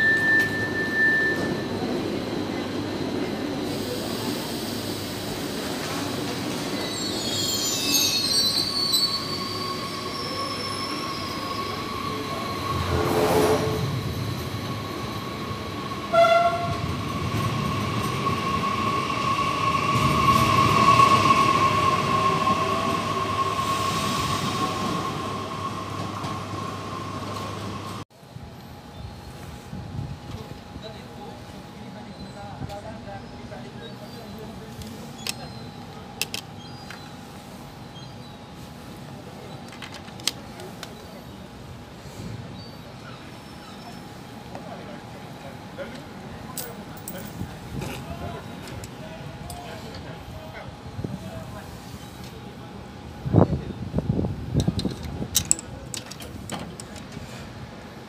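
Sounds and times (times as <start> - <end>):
high wheel squeal: 0.0 - 1.9, 6.8 - 27.8
train rumbling: 0.0 - 31.8.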